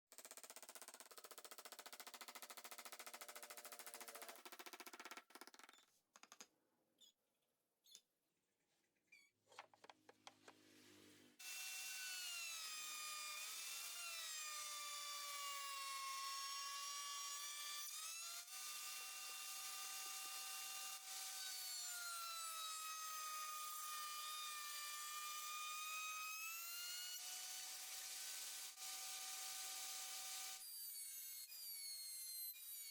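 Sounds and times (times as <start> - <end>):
power tool cutting wood: 11.4 - 32.9.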